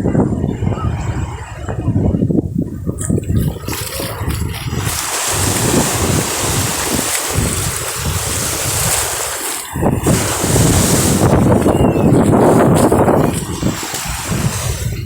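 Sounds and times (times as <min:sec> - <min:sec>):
wind on microphone: 0:00.0 - 0:15.0
sea waves washing in: 0:03.1 - 0:15.0.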